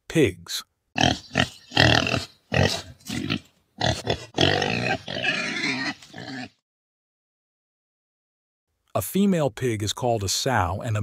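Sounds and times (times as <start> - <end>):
pigs calling: 1.0 - 6.6.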